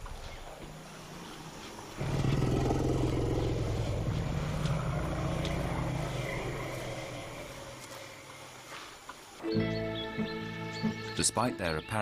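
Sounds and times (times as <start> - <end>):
elephant deep rumble: 0.4 - 8.9.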